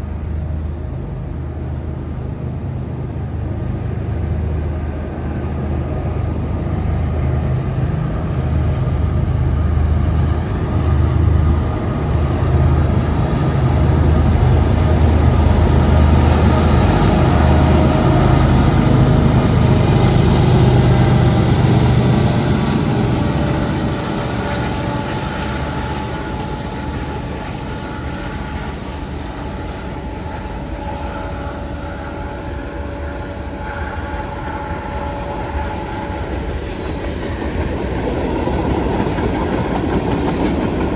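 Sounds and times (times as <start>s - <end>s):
train rumbling past: 0.0s - 40.9s
squealing train wheels: 10.6s - 40.9s.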